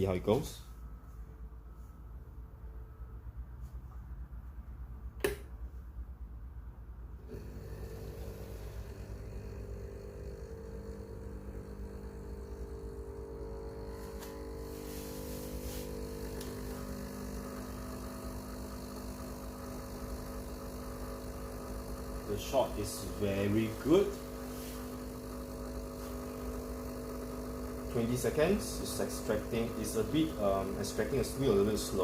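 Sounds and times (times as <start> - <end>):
sharp click: 5.2 - 5.5
espresso machine pump humming: 7.1 - 32.0.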